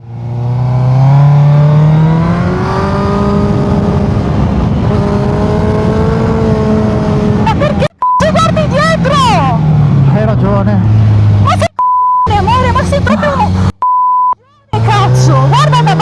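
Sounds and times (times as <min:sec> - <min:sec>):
motorcycle engine revving: 0:00.0 - 0:11.7, 0:12.3 - 0:13.8, 0:14.8 - 0:16.0
wind rush: 0:02.3 - 0:07.5.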